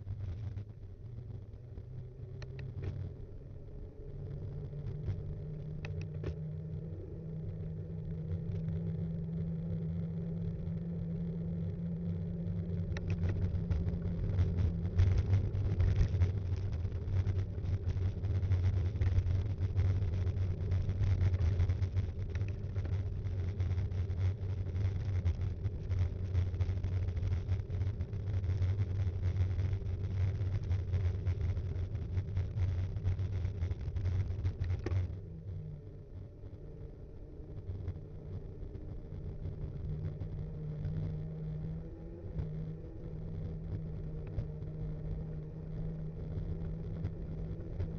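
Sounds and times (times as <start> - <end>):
mountain bike rumbling and rattling: 11.8 - 47.9.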